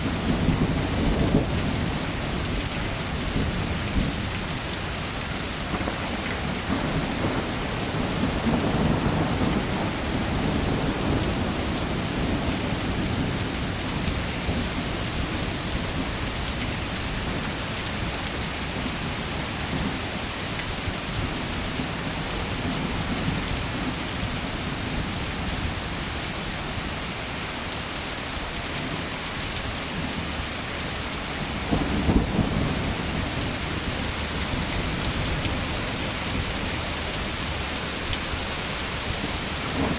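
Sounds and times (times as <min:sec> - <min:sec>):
heavy rain: 0:00.0 - 0:39.9
thunder rolling: 0:31.4 - 0:39.9.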